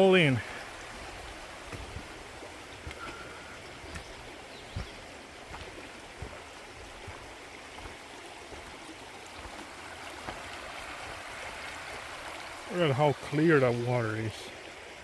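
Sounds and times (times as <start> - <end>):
creek flowing over rocks: 0.0 - 15.0
soft low thumps: 0.8 - 8.8.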